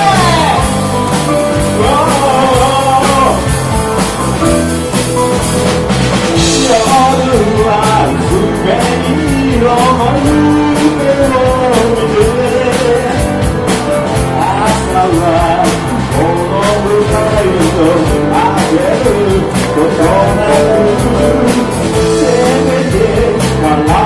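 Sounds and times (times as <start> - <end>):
person singing: 0.0 - 3.8, 6.4 - 24.0
bass guitar: 0.0 - 24.0
drum kit beat: 0.0 - 24.0
electric guitar: 0.0 - 24.0.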